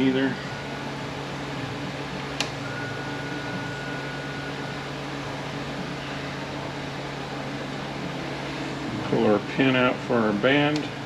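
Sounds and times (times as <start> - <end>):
fan humming and hissing: 0.0 - 11.0.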